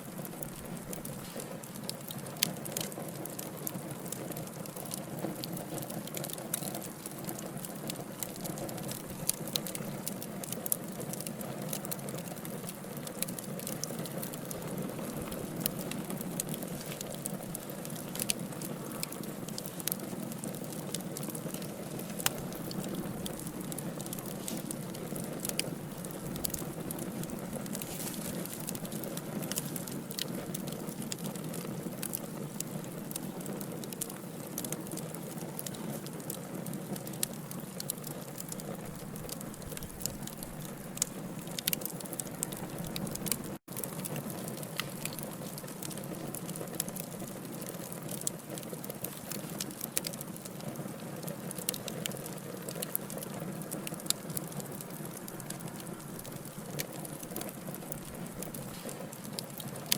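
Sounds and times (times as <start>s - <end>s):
logs crackling and popping: 0.0s - 59.9s
low rushing of flame: 12.6s - 36.3s.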